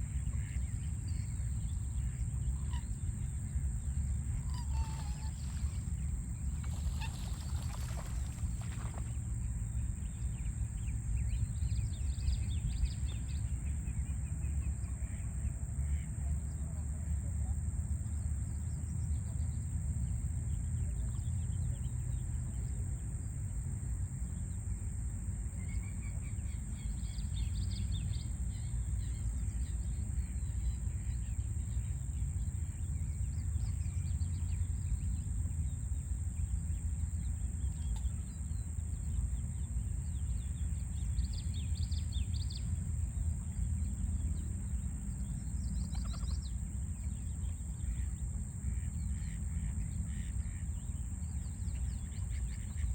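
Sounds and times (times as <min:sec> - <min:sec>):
small birds chirping: 0:04.5 - 0:13.3.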